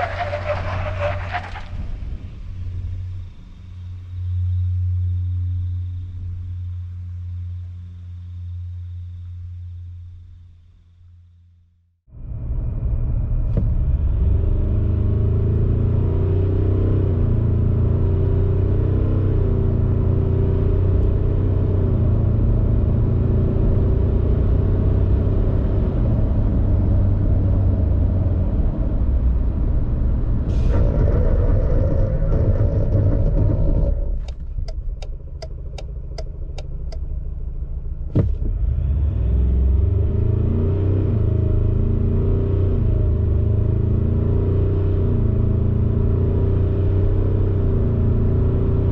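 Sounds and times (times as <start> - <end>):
diesel engine running under load: 26.0 - 38.9.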